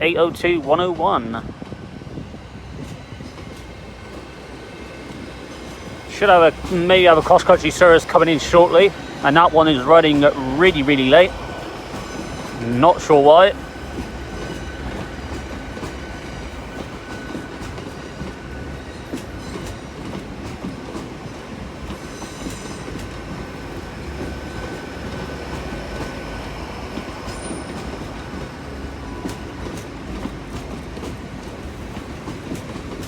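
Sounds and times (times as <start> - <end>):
train running noise: 0.0 - 33.0
wheels clicking on rails: 2.7 - 33.0.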